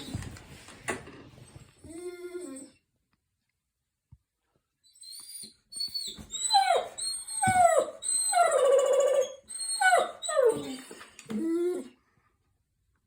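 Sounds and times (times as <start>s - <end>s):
dog whining and howling: 1.9s - 2.8s, 4.9s - 12.0s.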